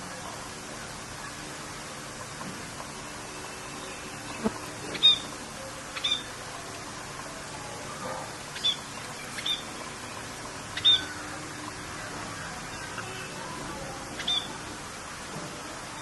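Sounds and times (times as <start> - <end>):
rain hiss: 0.0 - 16.0
bird chirping: 3.6 - 5.4, 6.0 - 6.3, 8.5 - 11.3, 14.2 - 14.6.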